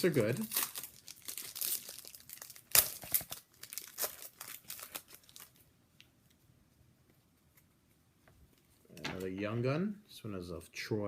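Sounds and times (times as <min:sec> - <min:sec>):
card pack wrapper tearing and crinkling: 0:00.0 - 0:05.6.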